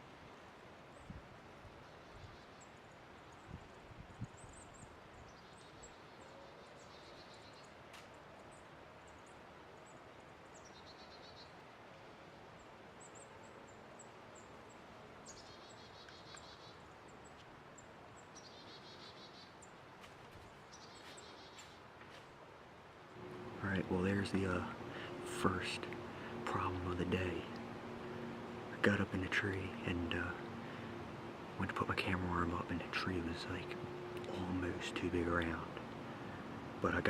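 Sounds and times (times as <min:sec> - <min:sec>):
faint steady hiss: 0:00.0 - 0:37.0
small birds chipping: 0:00.0 - 0:37.0.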